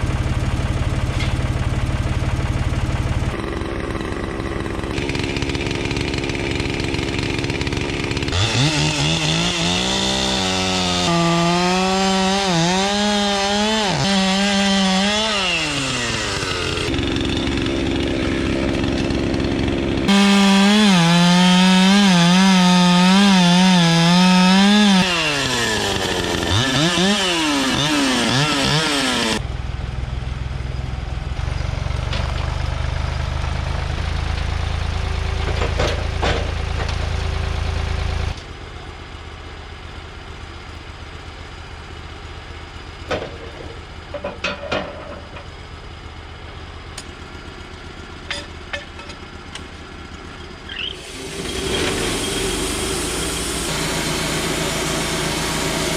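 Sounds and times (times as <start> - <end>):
chainsaw revving: 3.2 - 29.4, 50.5 - 55.9.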